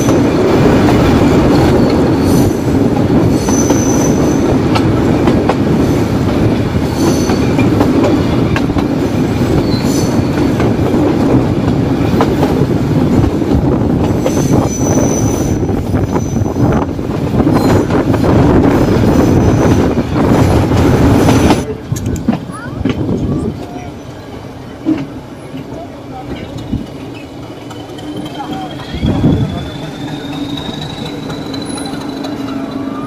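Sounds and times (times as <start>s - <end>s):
train wheels rumbling on rail: 0.0s - 33.0s
high wheel squeal: 3.3s - 4.4s, 9.6s - 10.3s, 14.3s - 16.8s, 27.1s - 33.0s.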